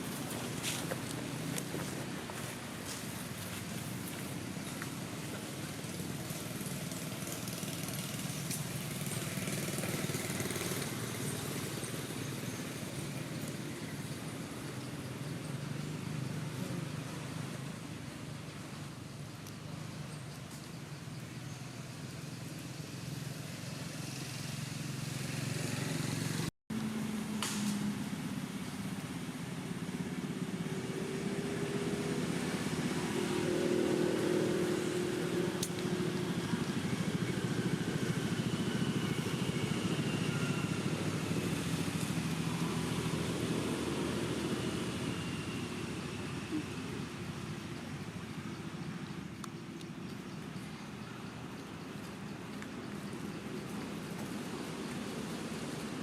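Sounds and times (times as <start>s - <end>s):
motor engine running: 0.0s - 18.8s, 21.6s - 56.0s.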